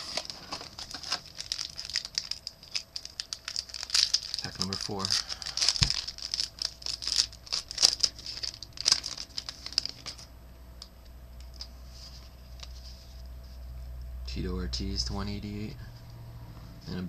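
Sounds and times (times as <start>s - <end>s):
card pack wrapper crinkling: 0.0s - 10.3s.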